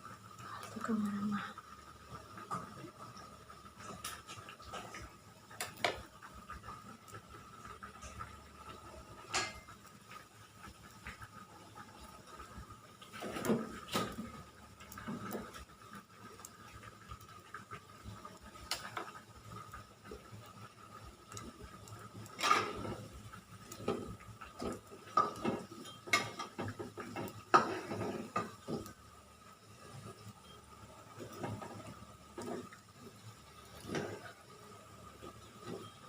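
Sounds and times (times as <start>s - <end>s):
kitchen utensils clattering: 9.3s - 9.7s, 22.3s - 23.0s, 23.8s - 28.9s.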